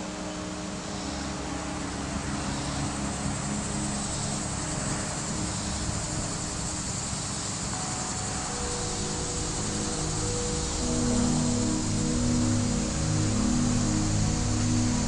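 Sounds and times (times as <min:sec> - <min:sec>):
ambient music drone tones: 0:00.0 - 0:15.0
steady rushing noise: 0:00.0 - 0:15.0.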